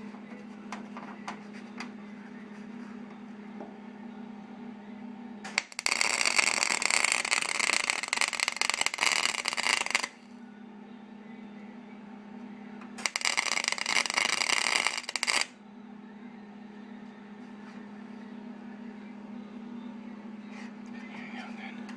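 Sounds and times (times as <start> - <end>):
steady low hum: 0.0 - 21.9
welder crackling: 5.5 - 10.3, 13.0 - 15.5.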